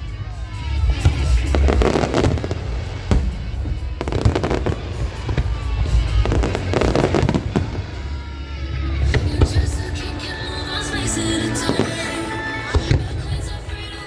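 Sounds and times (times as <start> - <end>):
music playing: 0.0 - 14.0
fireworks bursting and crackling: 0.8 - 8.4
deep rumble: 0.8 - 10.1.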